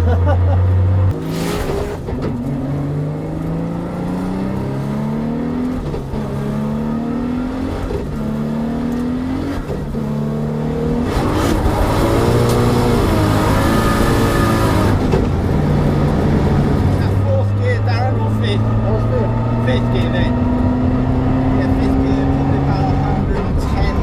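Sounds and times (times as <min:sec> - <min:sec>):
car engine accelerating hard: 0:00.4 - 0:24.0.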